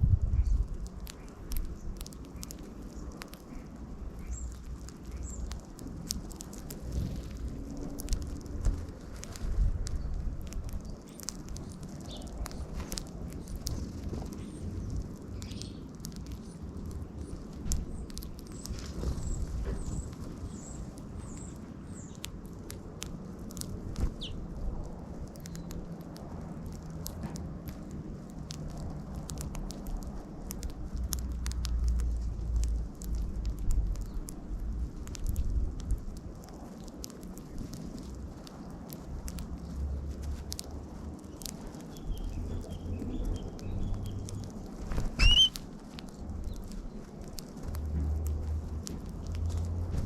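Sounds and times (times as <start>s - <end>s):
low background rumble: 0.0s - 50.0s
birds pecking seed clicks: 0.1s - 50.0s
soft bird chirps: 0.3s - 5.6s, 14.3s - 16.6s, 17.2s - 22.3s, 41.3s - 44.6s, 45.2s - 45.6s
falling bird call: 45.2s - 45.6s
short high bird chirps: 45.2s - 45.6s.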